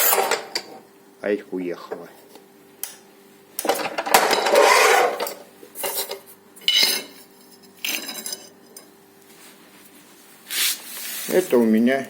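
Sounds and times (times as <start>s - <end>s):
tile scraping on tile cutter: 0.0s - 0.5s, 4.2s - 6.0s.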